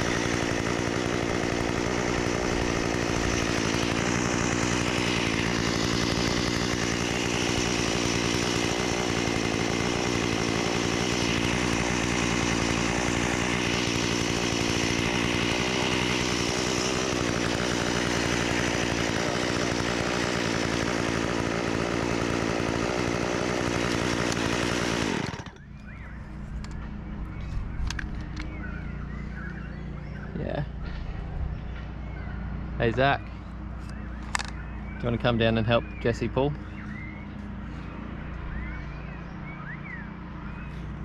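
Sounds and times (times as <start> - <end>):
chainsaw running: 0.0 - 41.0.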